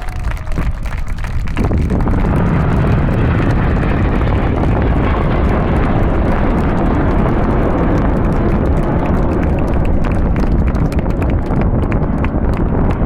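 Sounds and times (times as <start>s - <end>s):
jets roaring overhead: 0.0s - 13.0s.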